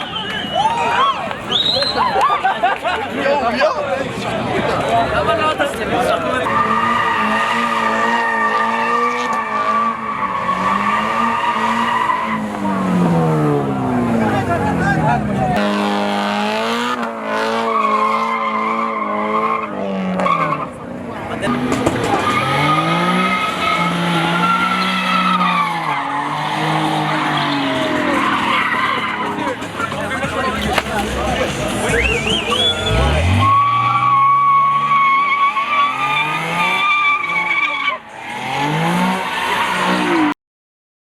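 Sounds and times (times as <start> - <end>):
car tyres squealing: 0.0 - 3.2, 4.0 - 40.4
car engine at high revs: 5.8 - 40.3.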